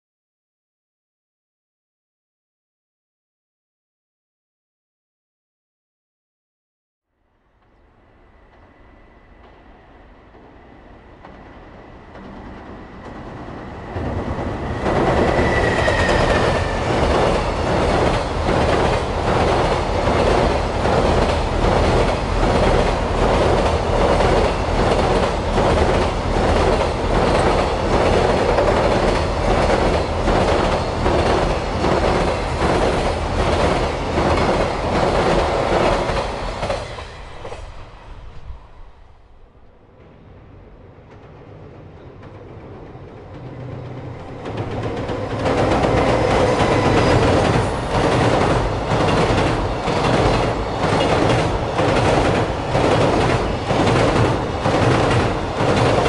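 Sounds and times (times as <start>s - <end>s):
freight train crossing steel bridge: 7.3s - 56.0s.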